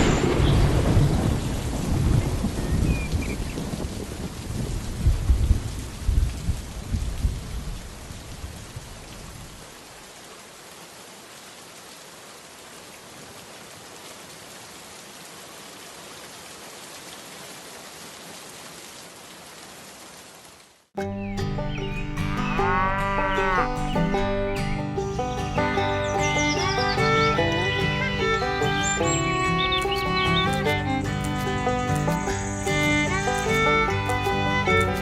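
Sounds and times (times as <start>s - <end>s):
thunder rumbling: 0.0s - 8.9s
rain falling: 0.0s - 20.9s, 21.6s - 35.0s.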